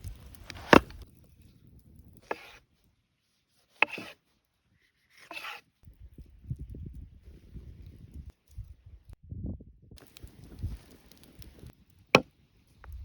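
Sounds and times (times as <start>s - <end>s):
handling noise: 0.0s - 1.1s.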